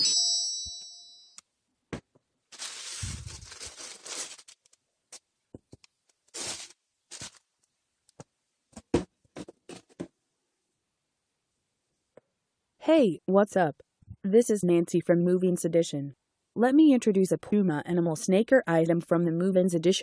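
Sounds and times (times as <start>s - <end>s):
paper rustling: 2.5s - 4.8s, 6.2s - 7.4s.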